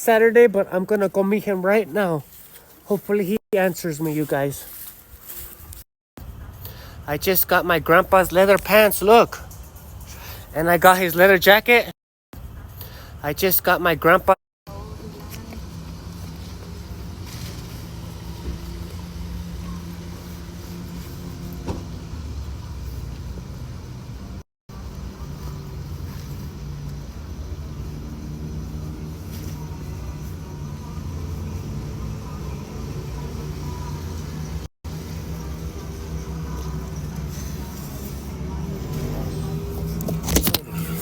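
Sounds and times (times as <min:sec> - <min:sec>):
motorcycle engine running: 0:14.7 - 0:41.0.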